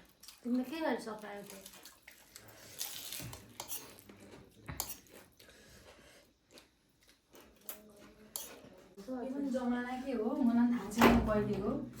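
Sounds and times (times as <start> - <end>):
chewing with clicks and crunches: 0.0 - 9.0.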